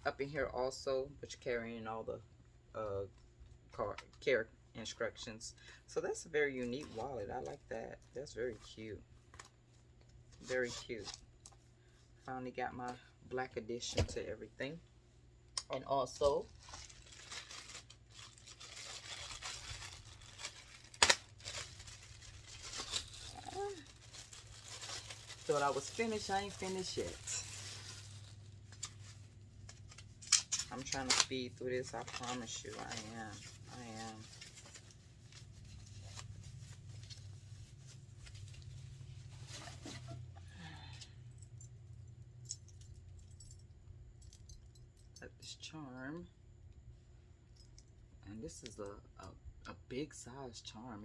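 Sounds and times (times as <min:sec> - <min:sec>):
wrapping rustling and tearing: 0:16.1 - 0:40.9.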